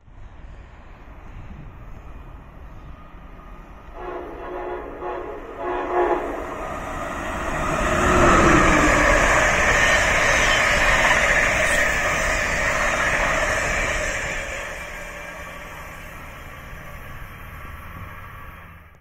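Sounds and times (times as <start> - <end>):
train passing at speed: 0.0 - 19.0
train horn blasts: 3.8 - 6.6.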